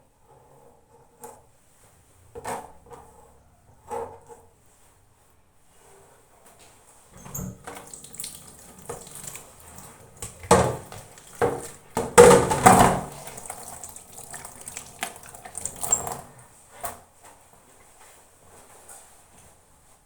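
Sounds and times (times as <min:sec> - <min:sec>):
tap water running into sink: 0:07.2 - 0:16.4
kitchenware knocking: 0:10.5 - 0:13.2.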